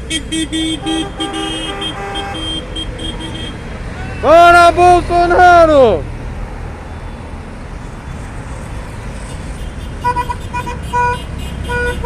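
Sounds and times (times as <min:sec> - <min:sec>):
car horn honking short beeps: 0:00.0 - 0:04.4, 0:09.9 - 0:12.0
low rumble of slow cars: 0:00.0 - 0:12.0.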